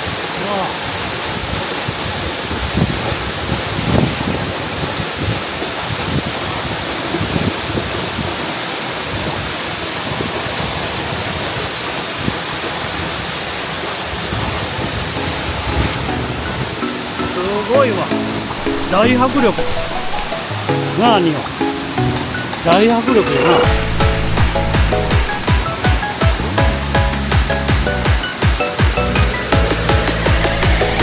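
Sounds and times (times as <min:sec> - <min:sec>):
waterfall roaring: 0:00.0 - 0:31.0
faint low knocks: 0:23.6 - 0:25.6.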